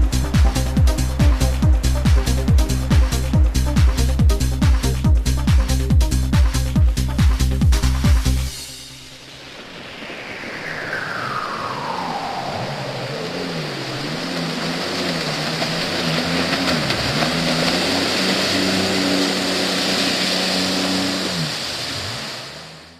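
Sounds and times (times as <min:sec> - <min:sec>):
boat engine revving: 0:00.0 - 0:08.5, 0:12.7 - 0:22.9
water and wind hiss: 0:08.3 - 0:22.9
falling whine: 0:08.5 - 0:22.9.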